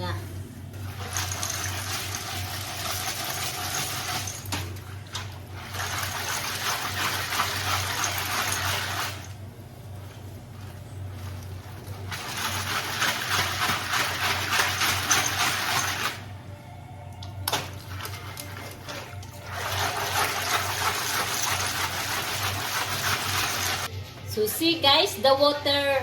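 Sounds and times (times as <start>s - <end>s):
background music: 14.4s - 26.0s.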